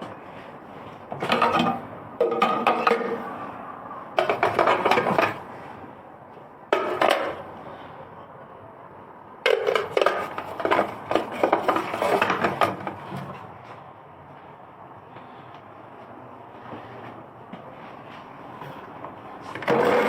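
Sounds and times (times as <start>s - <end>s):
juicer parts clattering: 1.1s - 3.3s, 4.2s - 5.4s, 9.5s - 13.3s, 19.5s - 20.0s.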